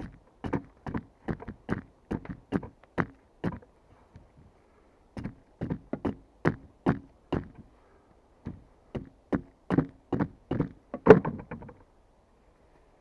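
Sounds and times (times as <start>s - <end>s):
tool knocking on wood: 0.4s - 3.7s, 5.2s - 7.6s, 8.4s - 11.8s.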